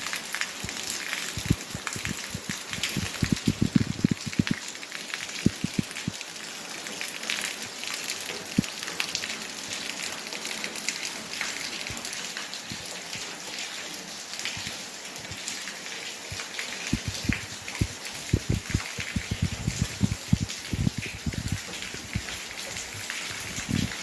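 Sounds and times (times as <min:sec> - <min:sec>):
rain falling: 0:00.0 - 0:24.0
heavy raindrops thudding: 0:00.6 - 0:04.6, 0:05.4 - 0:06.1, 0:16.9 - 0:24.0.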